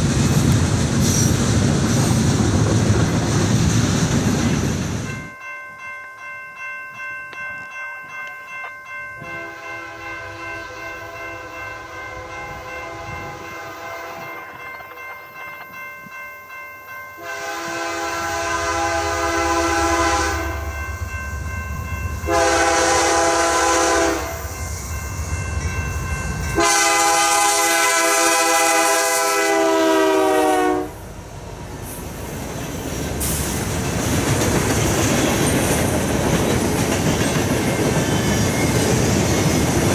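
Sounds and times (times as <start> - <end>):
passing train rumble: 0.0 - 5.5, 8.9 - 16.2, 17.1 - 39.9
locomotive air horn blasts: 9.3 - 14.4, 17.2 - 20.6, 22.3 - 24.5, 26.6 - 31.0.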